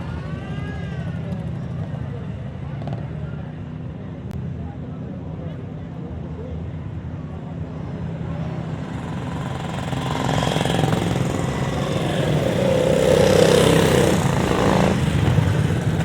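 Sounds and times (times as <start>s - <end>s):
motorcycle engines droning: 0.0s - 16.0s
motorcycle passing close: 8.2s - 16.0s.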